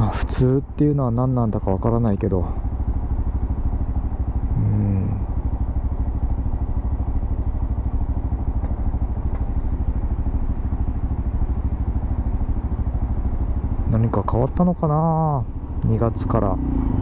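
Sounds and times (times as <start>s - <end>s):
motorcycle engine idling: 0.0s - 17.0s
short low hum: 4.4s - 6.5s.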